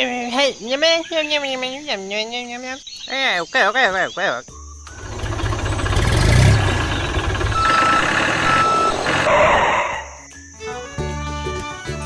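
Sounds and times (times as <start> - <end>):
vehicle engine rumbling: 4.9 - 10.2
reversing beeps: 7.4 - 10.0.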